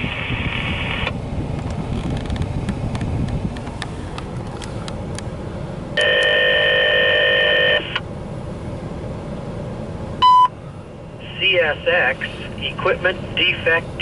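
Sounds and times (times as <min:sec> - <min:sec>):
low rumble with clicks: 0:00.0 - 0:06.3
steady chord of radio tones: 0:06.0 - 0:08.0, 0:11.2 - 0:14.0
short sharp beep: 0:10.2 - 0:10.5.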